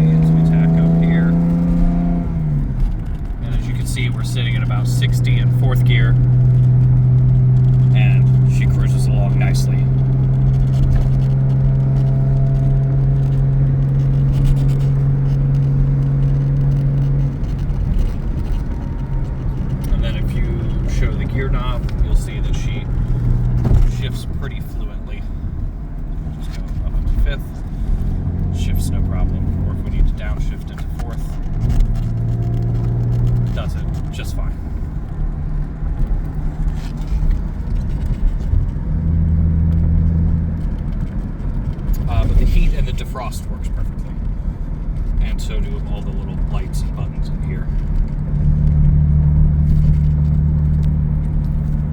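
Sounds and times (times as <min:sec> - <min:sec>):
road rumble: 0:00.0 - 0:51.9
steady engine drone: 0:00.0 - 0:51.9.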